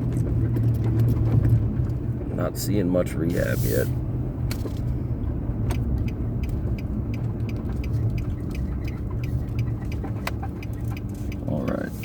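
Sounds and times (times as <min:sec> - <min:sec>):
car engine from inside cabin: 0:00.0 - 0:12.0
road rumble: 0:00.0 - 0:12.0
light evenly spaced ticks: 0:05.9 - 0:12.0.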